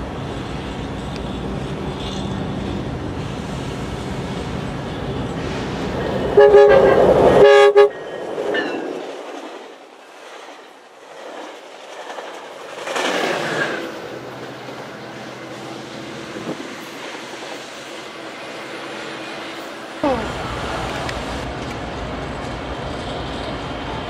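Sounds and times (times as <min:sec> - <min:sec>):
train wheels clacking on rails: 0:00.0 - 0:24.0
train horn blast: 0:06.2 - 0:08.1.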